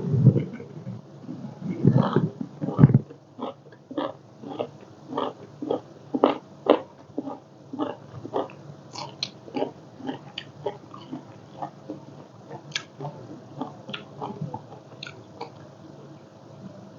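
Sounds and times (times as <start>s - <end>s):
wet chewing mouth sounds: 3.4s - 15.6s.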